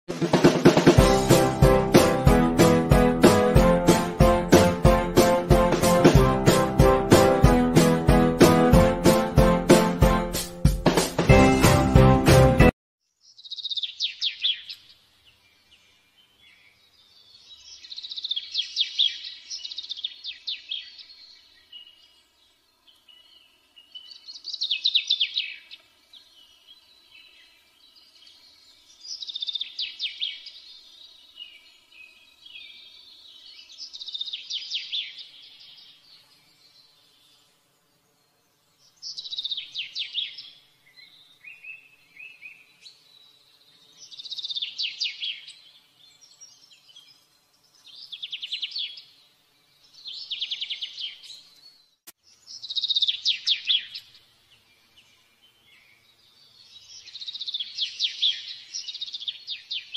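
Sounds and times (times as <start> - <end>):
songbird chirping and trilling: 13.1 - 59.9.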